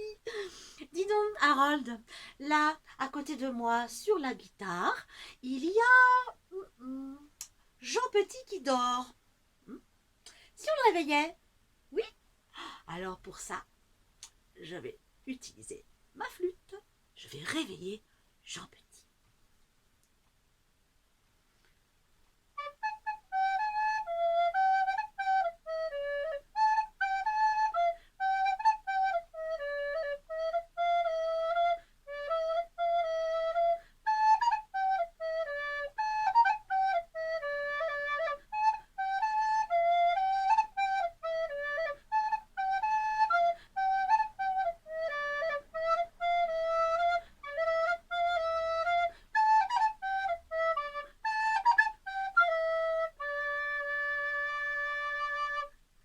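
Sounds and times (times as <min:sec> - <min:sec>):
recorder playing a simple melody: 0:22.6 - 0:55.8.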